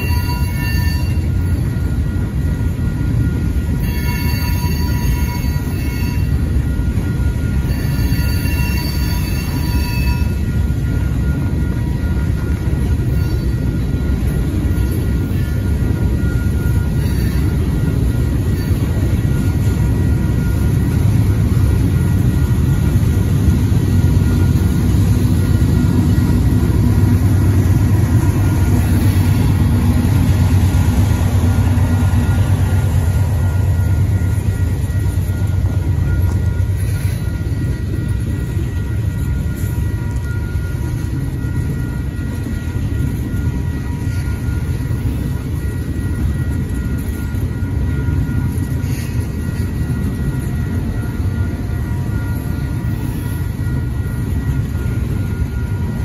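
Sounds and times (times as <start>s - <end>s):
deep locomotive rumble: 0.0s - 56.0s
freight train crossing bridge: 0.0s - 56.0s.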